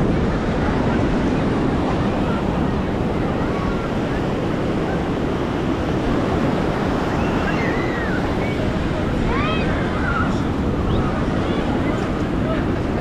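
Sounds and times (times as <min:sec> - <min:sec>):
faint voices: 0:00.0 - 0:13.0
ocean surf rushing: 0:00.0 - 0:13.0
wind buffeting microphone: 0:00.0 - 0:13.0.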